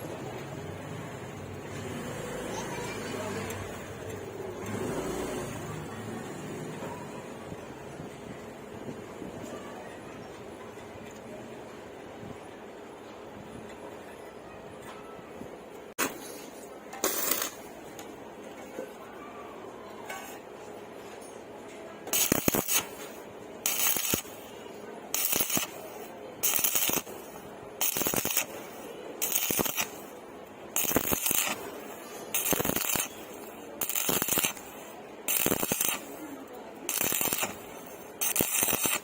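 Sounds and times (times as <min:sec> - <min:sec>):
welding arc crackling: 0:17.0 - 0:17.8, 0:22.1 - 0:39.0.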